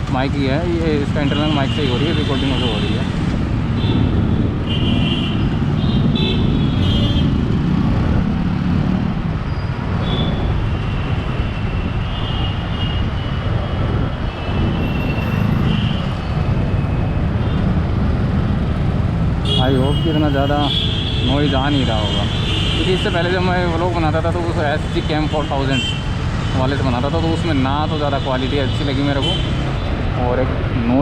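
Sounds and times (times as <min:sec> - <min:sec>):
traffic: 0:00.0 - 0:31.0
wind on microphone: 0:03.1 - 0:19.2
vehicle horns honking: 0:03.8 - 0:07.4, 0:10.0 - 0:11.2, 0:19.4 - 0:23.2.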